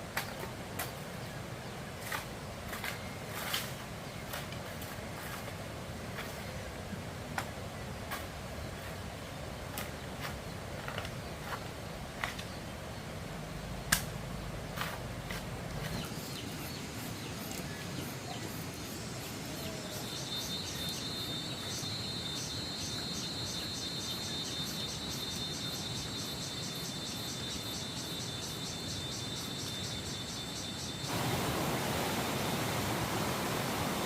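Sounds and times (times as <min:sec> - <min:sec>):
outdoor hiss: 0:00.0 - 0:34.0
insect chirping: 0:15.8 - 0:34.0
steady rushing noise: 0:31.0 - 0:34.0.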